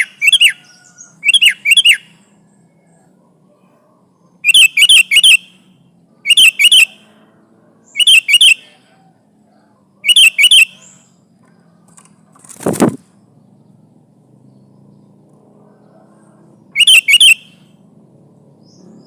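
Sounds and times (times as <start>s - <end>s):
bird calling sharp notes: 0.0s - 2.4s, 4.4s - 7.1s, 7.8s - 8.8s, 10.0s - 11.3s, 16.6s - 17.8s.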